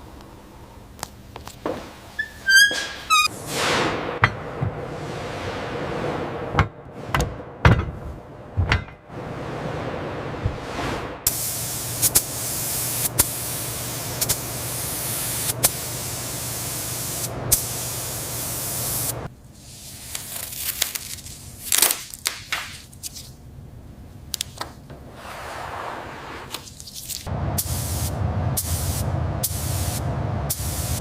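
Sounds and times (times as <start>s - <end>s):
low motor hum: 3.4s - 11.3s, 27.3s - 31.0s
pressurised sprayer hissing: 11.3s - 19.3s.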